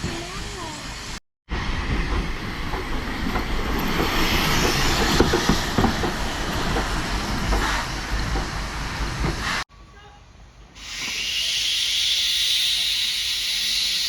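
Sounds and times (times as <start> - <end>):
train rumbling along track: 0.0 - 9.7
wheels clattering over rails: 1.9 - 9.6.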